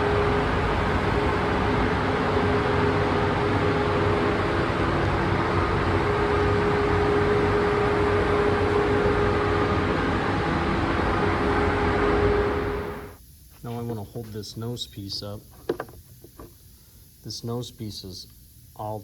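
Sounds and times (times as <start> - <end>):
machine rushing hum: 0.0 - 13.2
constant machine tone: 0.0 - 19.0.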